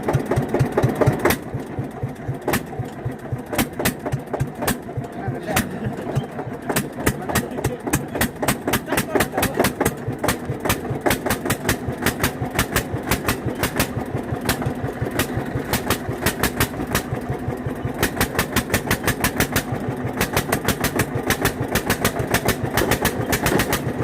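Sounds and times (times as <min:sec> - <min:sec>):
tractor diesel engine idling: 0:00.0 - 0:24.0.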